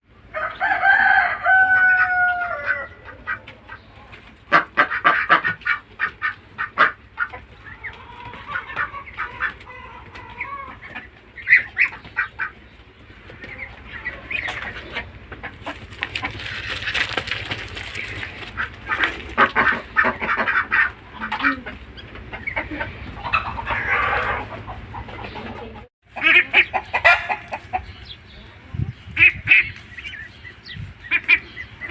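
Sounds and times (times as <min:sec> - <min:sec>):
chickens clucking: 0:00.1 - 0:31.9
rooster crowing: 0:00.3 - 0:03.1.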